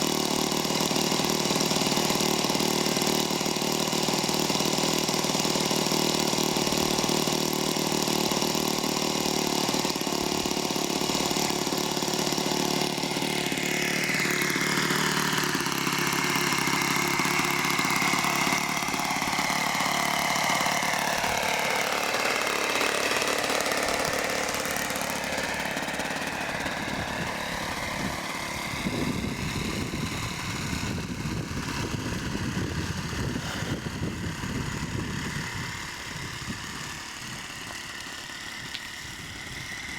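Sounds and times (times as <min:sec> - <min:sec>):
model plane engine running: 0:00.0 - 0:39.9.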